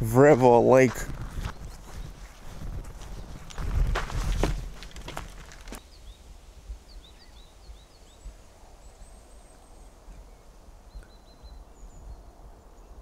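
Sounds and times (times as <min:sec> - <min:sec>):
footstep on wooden boardwalk: 0:00.3 - 0:05.8
small birds chirping: 0:01.3 - 0:13.0.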